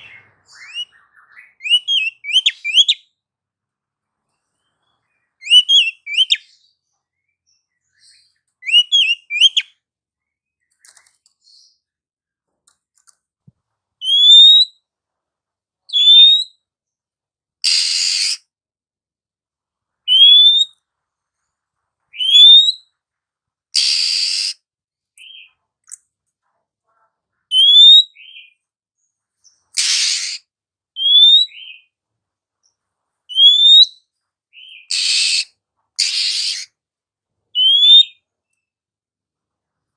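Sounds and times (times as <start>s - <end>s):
bird twittering: 0.0s - 3.0s, 8.6s - 9.7s, 29.8s - 30.4s, 31.0s - 31.9s, 33.3s - 34.0s, 34.6s - 36.7s, 37.6s - 38.2s
bird whistled notes: 8.6s - 9.7s, 17.7s - 18.4s, 23.8s - 24.6s, 37.6s - 38.2s
bird harsh rasping call: 17.6s - 18.4s, 23.8s - 24.6s, 29.8s - 30.4s, 34.6s - 36.7s.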